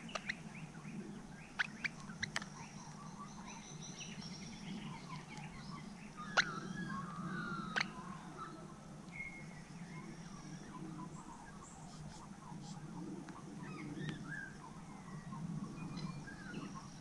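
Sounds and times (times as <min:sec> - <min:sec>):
faint sharp clicks: 0:01.6 - 0:02.5, 0:05.1 - 0:05.5.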